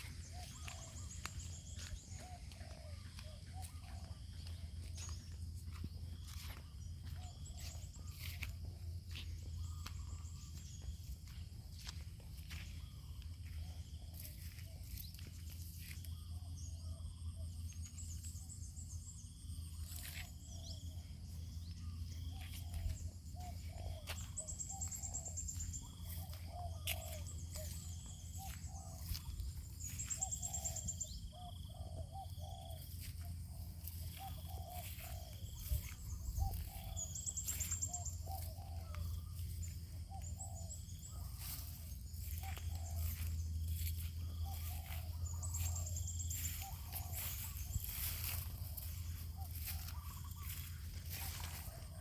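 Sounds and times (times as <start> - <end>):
steady low hum: 0.0 - 52.0
short low bird calls: 21.8 - 52.0.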